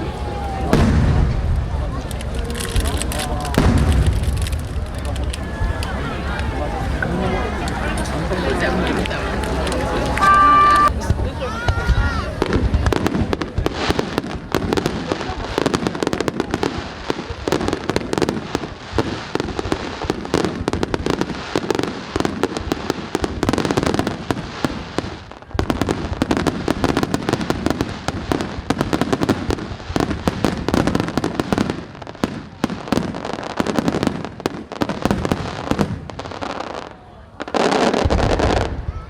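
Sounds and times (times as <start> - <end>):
fireworks bangs and crackling: 0.0 - 39.0.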